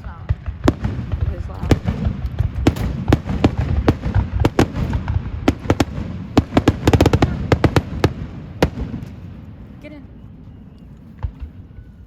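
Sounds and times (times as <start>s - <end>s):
fireworks popping and crackling: 0.0s - 9.4s
steady low rumble: 0.0s - 12.0s.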